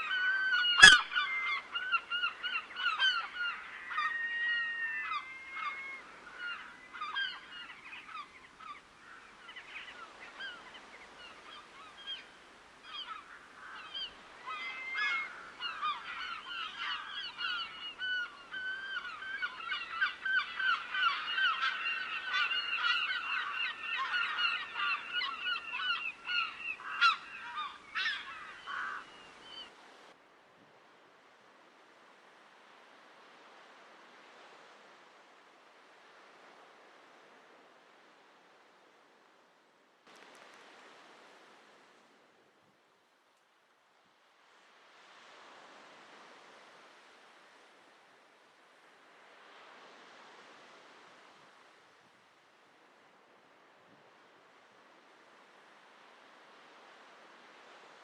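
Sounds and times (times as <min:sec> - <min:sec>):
waterbirds honking: 0:00.0 - 0:09.2, 0:12.9 - 0:29.7.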